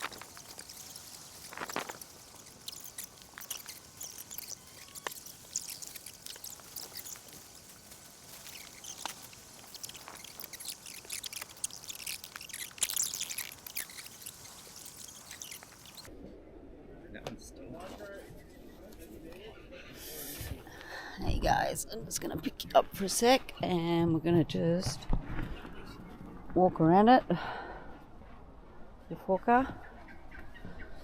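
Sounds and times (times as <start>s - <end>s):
small birds chirping: 0.0s - 16.1s
tent being pitched: 0.0s - 16.1s.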